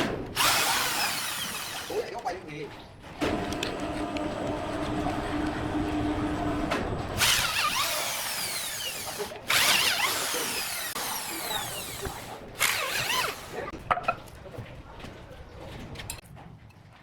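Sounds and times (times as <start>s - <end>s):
saw cutting wood: 0.3s - 2.1s, 3.3s - 13.7s
power saw motor humming: 0.4s - 2.0s, 3.3s - 13.7s.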